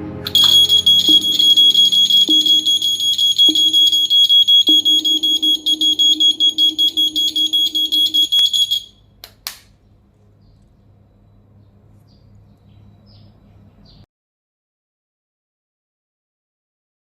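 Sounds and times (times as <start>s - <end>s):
electronic buzzer pulsing beep: 0.3s - 9.0s.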